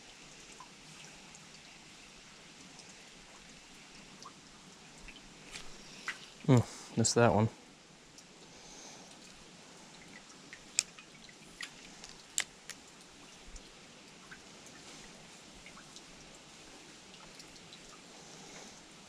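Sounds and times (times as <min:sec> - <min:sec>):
creek water trickling: 0:00.0 - 0:19.0
sharp clicks and drips: 0:02.6 - 0:03.6, 0:09.1 - 0:14.9.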